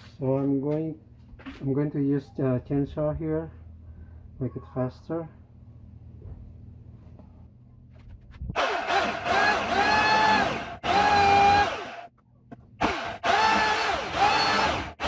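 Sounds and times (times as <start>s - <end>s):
chainsaw cutting wood: 8.5s - 12.1s, 12.8s - 15.0s.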